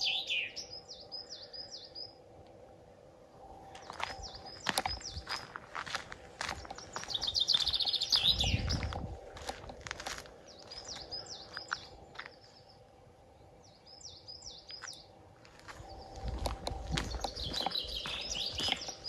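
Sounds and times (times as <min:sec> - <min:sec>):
bird trill: 0:00.0 - 0:02.2, 0:06.5 - 0:08.9, 0:15.9 - 0:19.0
songbirds chirping: 0:00.0 - 0:19.0.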